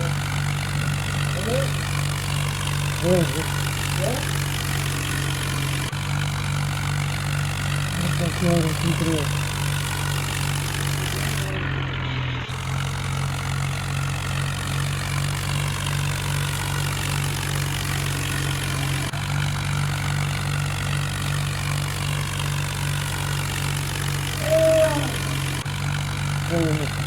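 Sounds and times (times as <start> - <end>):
tractor engine throbbing: 0.0 - 27.0
person speaking: 1.3 - 1.8, 3.0 - 4.3, 8.0 - 9.3, 24.4 - 25.4, 26.5 - 27.0.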